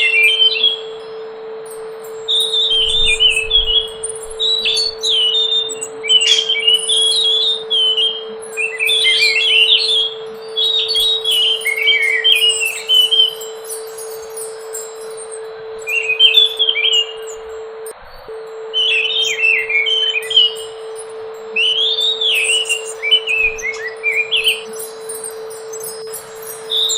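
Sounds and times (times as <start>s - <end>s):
steady low tone: 0.8s - 26.9s
high bird chirps: 2.3s - 15.1s, 15.9s - 17.4s, 18.8s - 20.8s, 21.6s - 26.9s.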